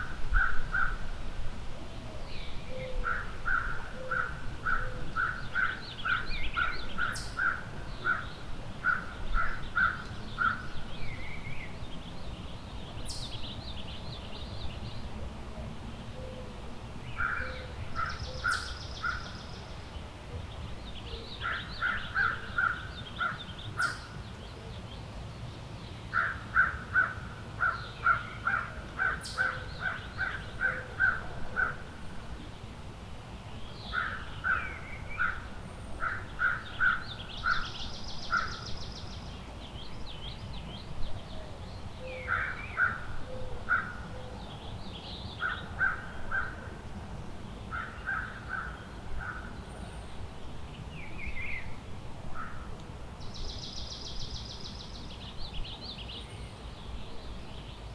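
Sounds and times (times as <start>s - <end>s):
birds trilling and chirping: 26.1s - 31.9s.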